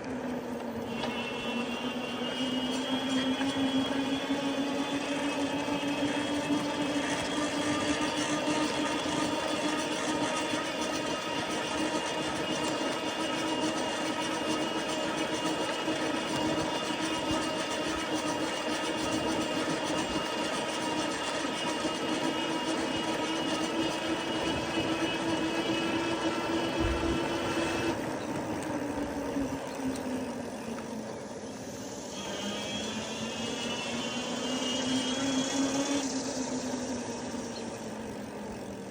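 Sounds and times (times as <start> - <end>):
electric bike motor whine: 0.0 - 38.9
tyres and wind noise: 5.4 - 31.8.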